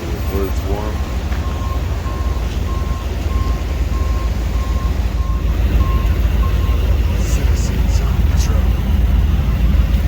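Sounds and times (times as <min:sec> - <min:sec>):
heavy low rumble: 0:00.0 - 0:10.0
reversing alarm beeping: 0:00.2 - 0:08.3.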